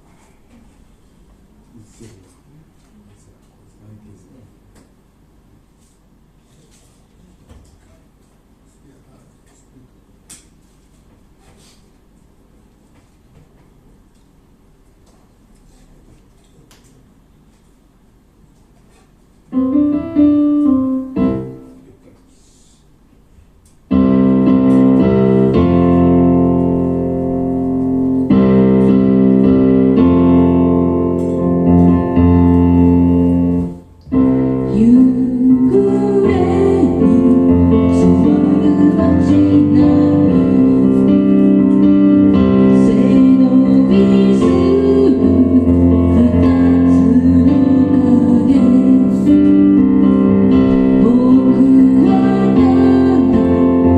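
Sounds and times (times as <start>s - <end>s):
electric piano chords: 19.5s - 22.0s, 23.8s - 53.9s
person singing: 34.6s - 49.9s, 50.8s - 53.9s.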